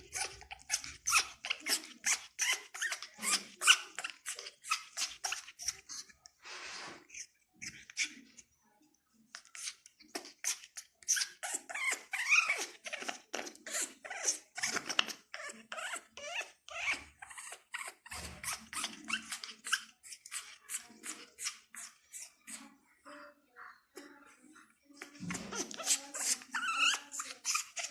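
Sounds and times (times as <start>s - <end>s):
parrot squeaking and chirping: 0.0s - 6.1s, 6.7s - 8.4s, 9.4s - 22.6s, 25.0s - 27.9s.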